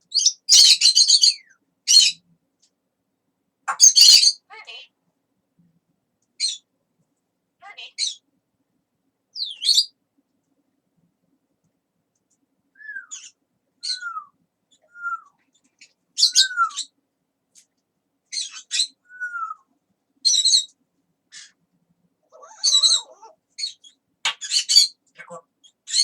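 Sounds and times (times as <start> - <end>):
parrot whistling and squawking: 0.2 - 2.2, 3.7 - 4.4, 16.2 - 16.9, 22.3 - 23.8
parrot babbling chatter: 22.3 - 23.4.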